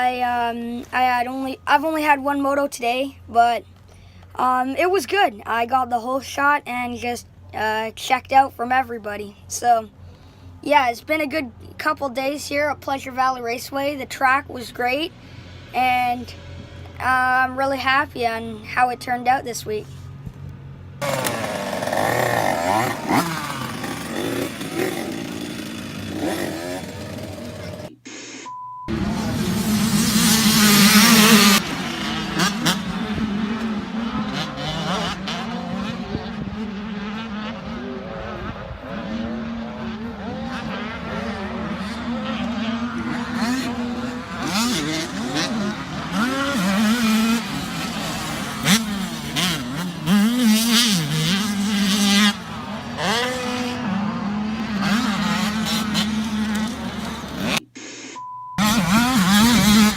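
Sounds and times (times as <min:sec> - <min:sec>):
dirt bike engine revving: 0:21.0 - 0:28.0, 0:28.9 - 0:57.8, 0:58.6 - 0:59.9.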